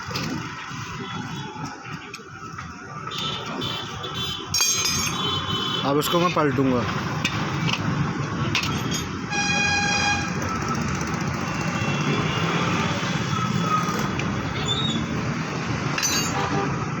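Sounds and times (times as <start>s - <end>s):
road traffic noise: 0.0s - 17.0s
vehicle horn toot: 9.3s - 10.4s.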